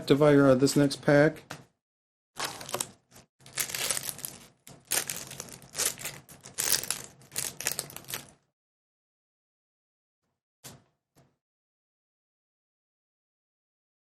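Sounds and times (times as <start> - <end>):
foil wrapper crinkling: 2.4 - 8.4.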